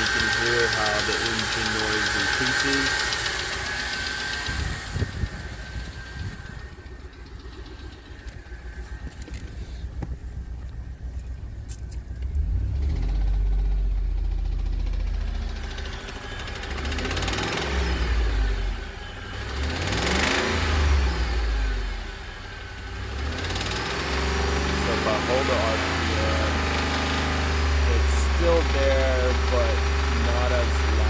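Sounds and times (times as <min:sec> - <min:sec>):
engine revving: 0:00.0 - 0:09.4, 0:12.2 - 0:31.0
engine idling with a knock: 0:07.1 - 0:12.2.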